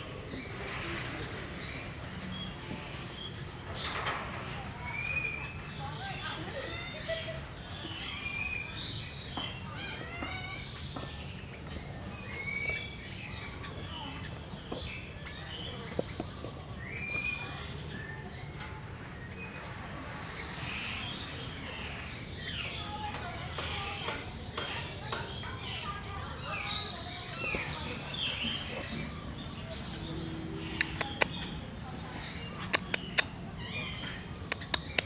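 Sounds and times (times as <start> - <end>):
faint distant voices: 0.0 - 35.0
bird chirps: 4.8 - 35.0
steady low hum: 27.7 - 35.0.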